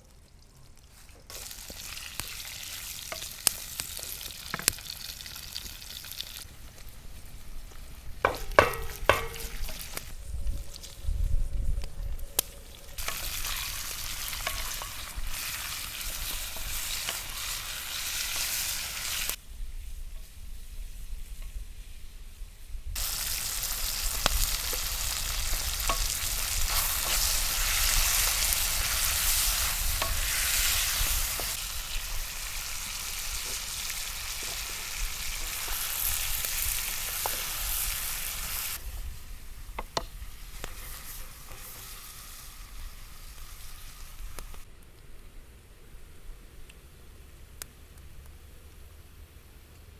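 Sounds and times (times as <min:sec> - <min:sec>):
small crackles and pops: 0:00.0 - 0:19.4, 0:23.0 - 0:45.3
food sizzling in hot oil: 0:01.3 - 0:11.3, 0:12.3 - 0:19.4, 0:23.0 - 0:44.7.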